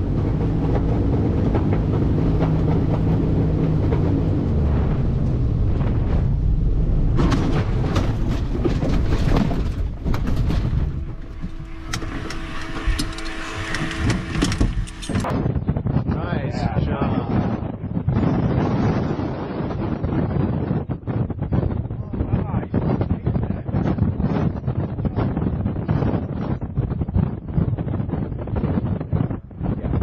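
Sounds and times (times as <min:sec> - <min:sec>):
aircraft engine rumble: 0:00.0 - 0:15.4.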